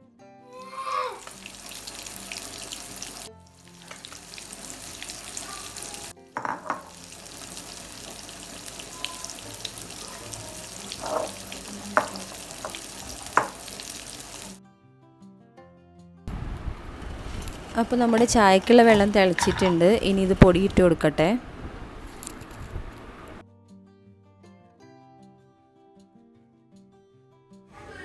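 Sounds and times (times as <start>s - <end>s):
food deep-frying in hot oil: 0.6s - 14.6s, 16.3s - 20.9s.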